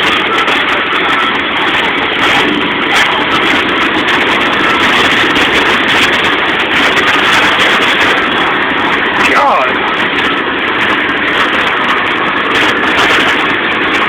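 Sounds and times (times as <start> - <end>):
heavy rain and wind: 0.0 - 14.0
truck engine and tyre noise: 0.0 - 14.0.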